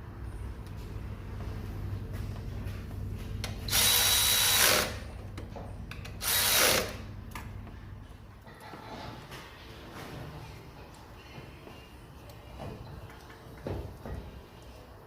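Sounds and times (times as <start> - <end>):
power drill running: 3.7 - 5.0, 6.2 - 7.0.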